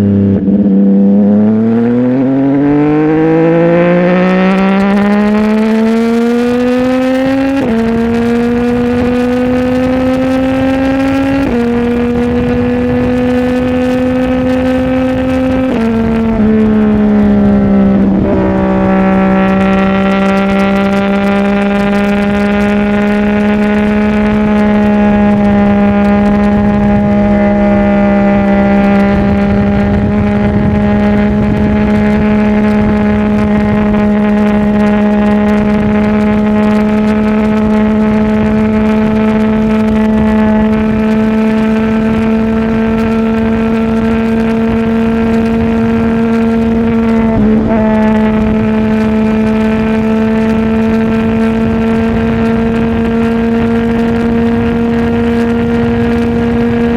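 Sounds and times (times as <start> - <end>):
motorcycle engine at high revs: 0.0 - 56.9.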